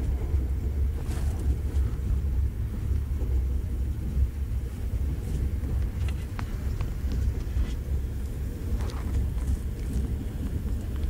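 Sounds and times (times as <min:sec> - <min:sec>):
train rumble inside carriage: 0:00.0 - 0:11.0.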